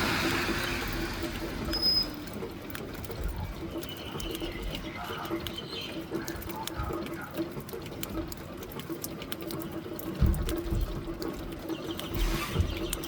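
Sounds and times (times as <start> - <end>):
rain pattering: 0.0 - 13.0.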